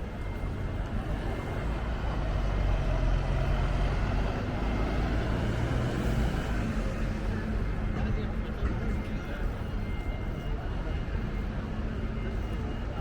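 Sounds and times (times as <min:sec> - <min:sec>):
vehicle engine rumbling: 0:00.0 - 0:10.2.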